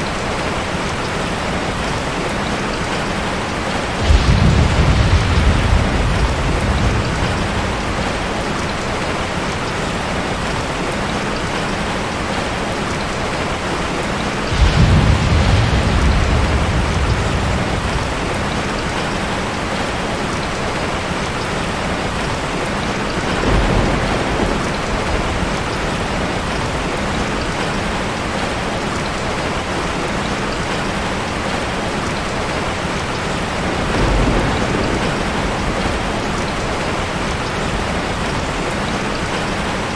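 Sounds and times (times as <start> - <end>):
steady wash of water: 0.0 - 39.9.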